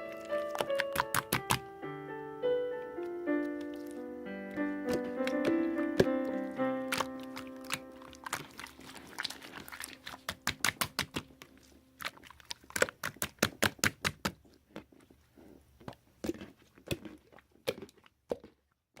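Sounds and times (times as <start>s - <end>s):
soft background music: 0.0s - 12.0s
slime clicking and popping: 0.2s - 1.7s, 4.9s - 14.4s.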